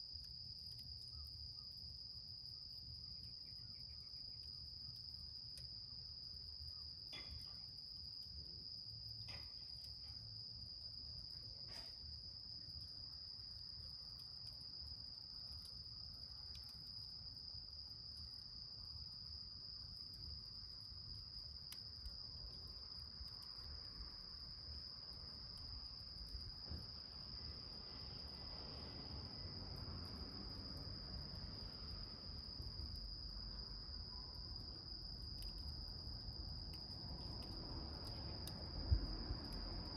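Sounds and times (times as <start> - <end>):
crickets trilling: 0.1 - 39.9
wood fire popping: 35.1 - 39.9.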